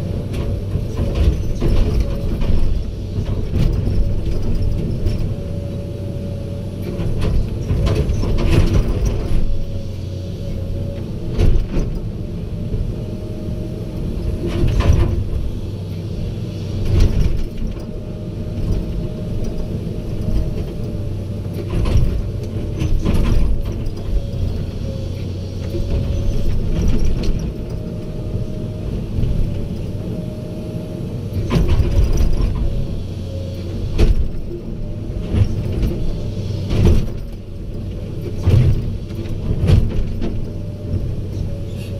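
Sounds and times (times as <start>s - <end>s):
diesel machinery running: 0.0s - 41.9s
knocks and clanks: 31.3s - 32.7s, 33.9s - 34.5s.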